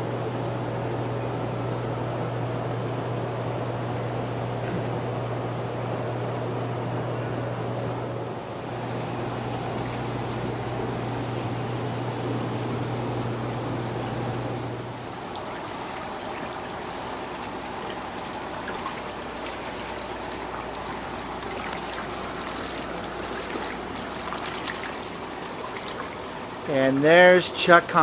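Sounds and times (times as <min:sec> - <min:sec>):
steady low hum: 0:00.0 - 0:28.0
water running and trickling: 0:13.9 - 0:27.8.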